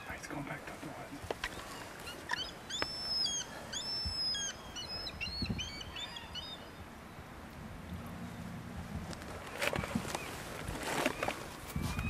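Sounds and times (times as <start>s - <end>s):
bird piping high notes: 1.4s - 6.8s.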